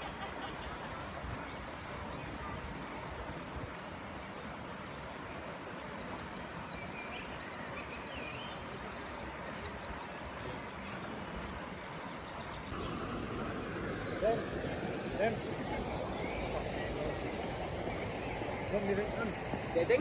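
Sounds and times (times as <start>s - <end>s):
outdoor background noise: 0.0s - 20.0s
songbird chirps and trills: 5.2s - 10.3s, 12.0s - 20.0s.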